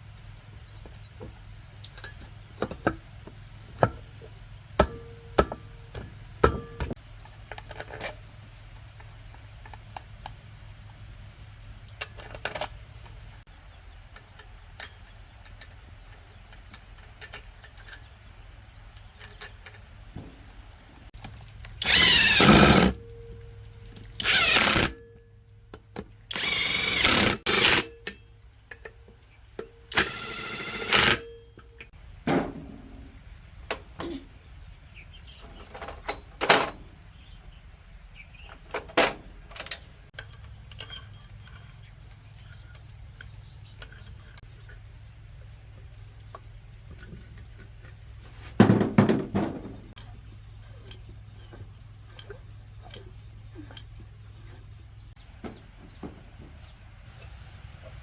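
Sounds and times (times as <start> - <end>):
parts clicking and knocking: 0.3 - 34.3, 38.1 - 58.0
power tool bursts: 21.8 - 23.0, 24.2 - 25.0, 26.3 - 27.9, 29.9 - 31.3.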